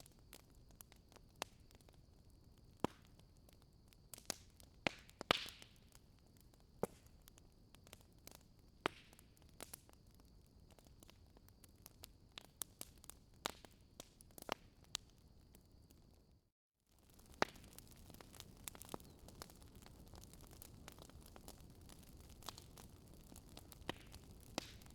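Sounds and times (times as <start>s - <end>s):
wood fire crackling: 0.0s - 16.1s, 16.9s - 24.9s.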